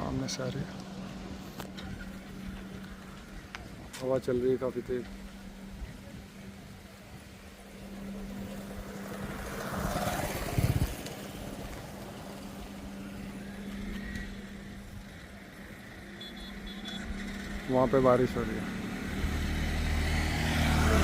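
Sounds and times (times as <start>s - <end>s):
wind gust on microphone: 8.5s - 12.6s
strong wind blowing: 8.7s - 12.4s.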